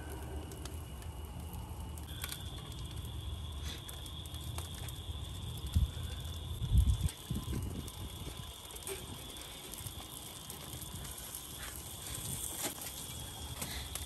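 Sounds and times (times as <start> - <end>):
steady high-pitched tone: 0.0 - 2.7
fish sizzling with crackles: 0.0 - 14.0.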